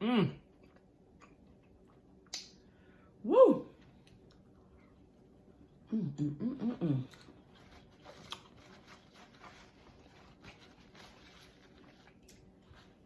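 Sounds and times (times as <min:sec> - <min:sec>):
woman humming mmm: 0:05.9 - 0:07.2.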